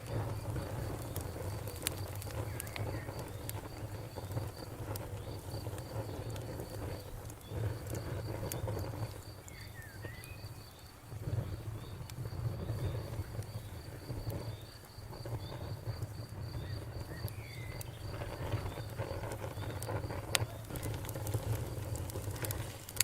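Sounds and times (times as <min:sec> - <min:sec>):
cricket chirping: 0:00.0 - 0:22.8
campfire crackling and popping: 0:00.0 - 0:23.0
bird chirps: 0:09.4 - 0:10.6.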